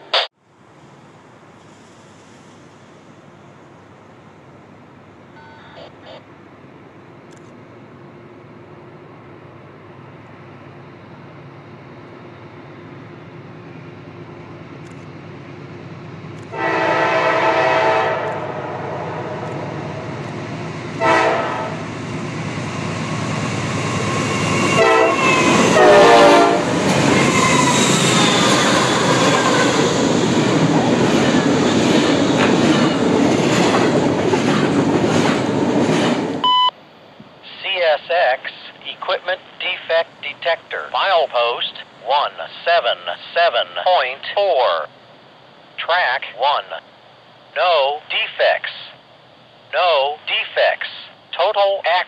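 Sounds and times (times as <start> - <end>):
train wheels rumbling on rails: 11.0 - 36.4
train horn blasts: 16.5 - 19.5, 21.0 - 21.8, 24.6 - 27.7.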